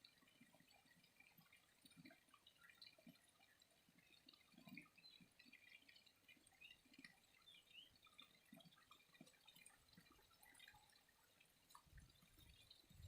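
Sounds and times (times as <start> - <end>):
water trickling and dripping: 0.0 - 13.0.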